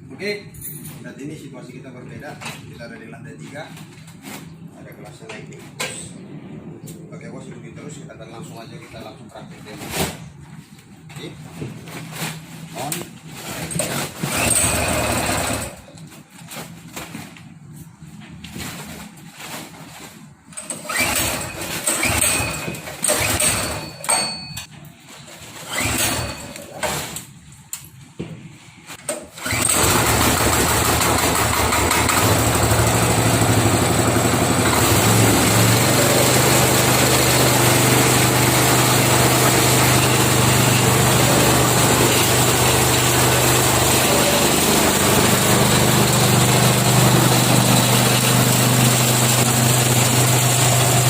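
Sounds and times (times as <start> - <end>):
engine cranking: 13.6 - 15.9, 20.7 - 24.2, 29.3 - 51.0
engine running driving mill: 29.4 - 51.0.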